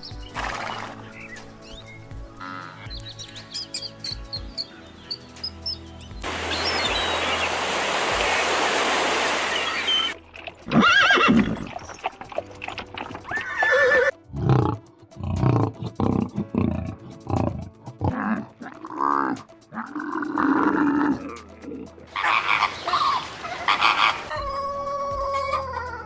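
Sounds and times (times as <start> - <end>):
background music: 0.0 - 26.0
steady hiss: 6.2 - 10.2
neigh-like animal calls: 9.6 - 12.0, 13.2 - 14.7.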